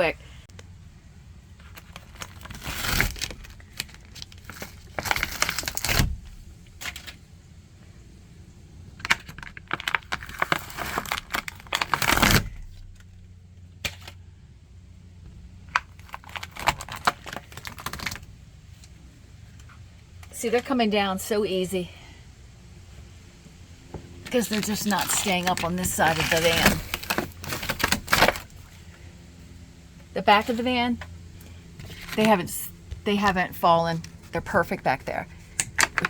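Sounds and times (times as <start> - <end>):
ceiling tiles tearing and crinkling: 1.6 - 7.3, 8.9 - 14.3, 15.6 - 19.0, 24.2 - 28.7.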